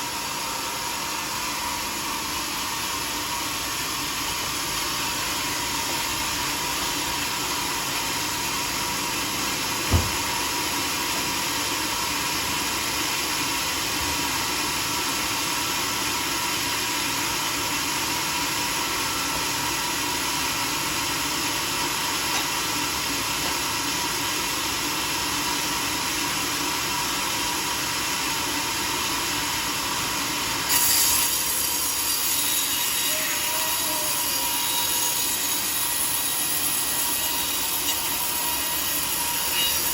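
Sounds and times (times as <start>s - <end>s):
sawmill sawing a log: 0.0s - 39.9s
sharp thump: 9.9s - 10.2s.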